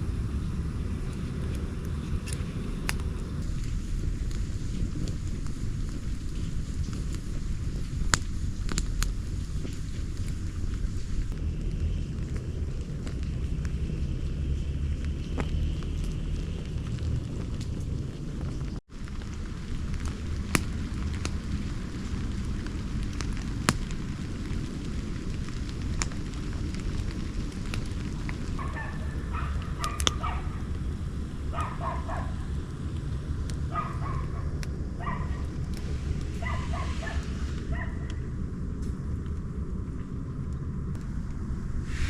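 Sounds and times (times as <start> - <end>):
campfire crackling and popping: 0.0 - 42.0
low rumble: 0.0 - 42.0
animal barking: 28.5 - 30.7, 31.5 - 32.5, 33.7 - 35.6, 36.3 - 38.3.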